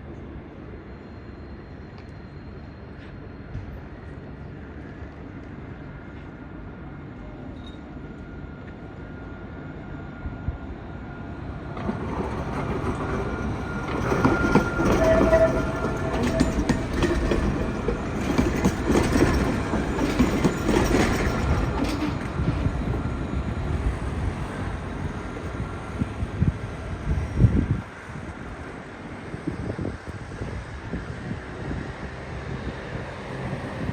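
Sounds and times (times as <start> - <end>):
tram running on rails: 0.0 - 33.9
tram wheel squeals: 0.2 - 5.1, 6.8 - 27.4.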